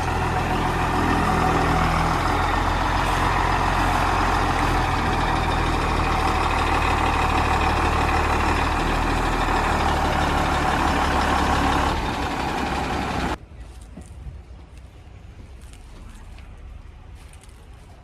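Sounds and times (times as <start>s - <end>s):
heavy diesel engine running: 0.0s - 13.4s.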